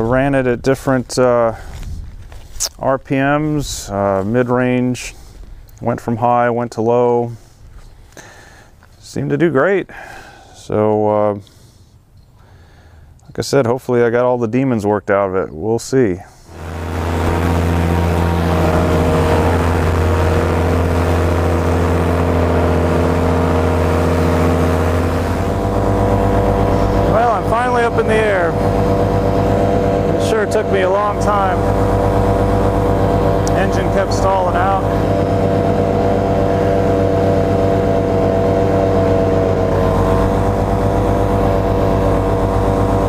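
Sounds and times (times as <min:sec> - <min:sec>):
paramotor engine running: 0:16.5 - 0:43.0.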